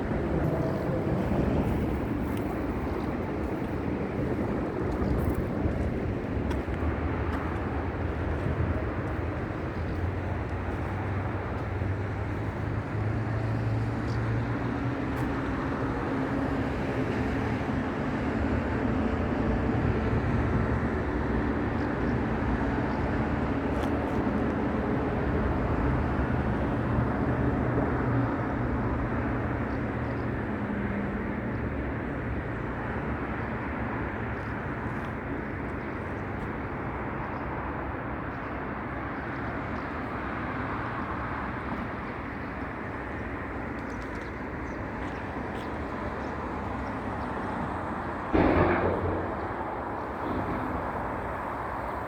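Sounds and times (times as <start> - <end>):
engine hum: 0.0 - 52.0
outdoor rumble: 42.1 - 52.0.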